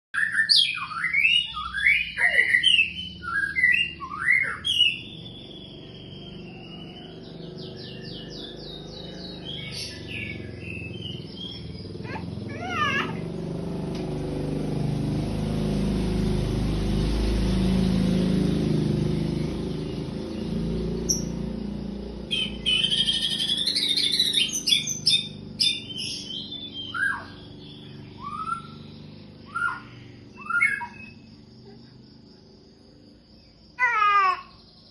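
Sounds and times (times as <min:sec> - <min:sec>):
bird singing whistled phrases: 0:00.2 - 0:13.2, 0:22.3 - 0:31.3.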